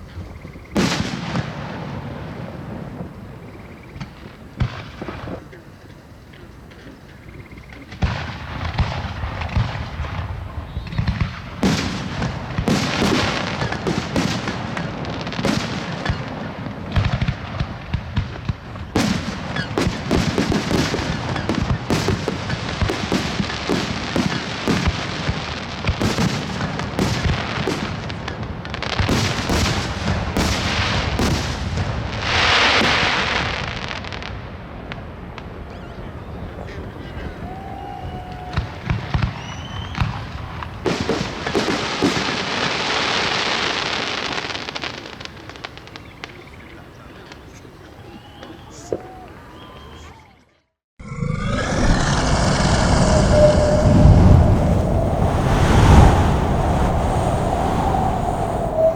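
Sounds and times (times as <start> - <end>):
fireworks bangs and crackles: 0.0 - 47.8, 51.8 - 58.9
loud hissing rush: 51.1 - 58.9.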